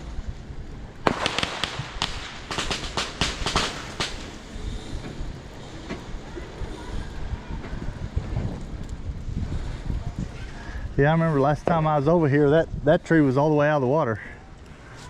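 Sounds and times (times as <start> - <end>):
firecrackers popping: 0.9 - 4.9.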